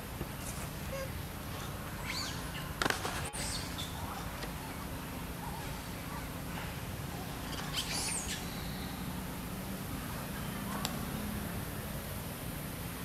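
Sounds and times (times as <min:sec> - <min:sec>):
steady forest hiss: 0:00.0 - 0:13.0.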